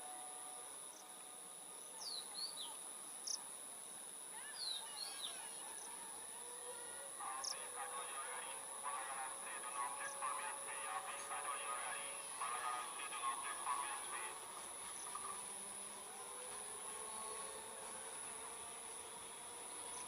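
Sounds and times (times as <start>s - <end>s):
steady high whine: 7.1s - 20.0s.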